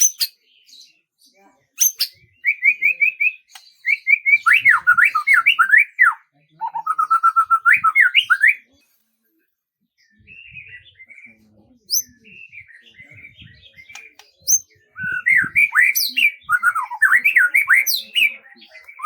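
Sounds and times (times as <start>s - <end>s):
songbird singing whistled notes: 0.0s - 1.0s, 1.8s - 8.7s, 10.1s - 19.0s
soft twittering: 10.1s - 19.0s.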